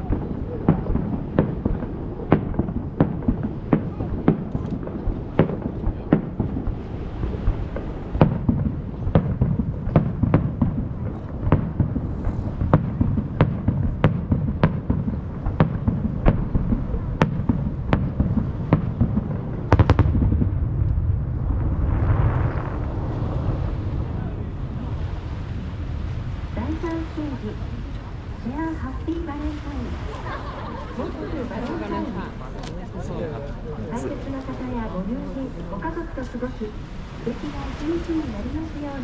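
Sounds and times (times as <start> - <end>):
fireworks bangs: 0.0 - 39.0
low rumble of echoes: 0.0 - 39.0
rushing noise: 18.5 - 31.0.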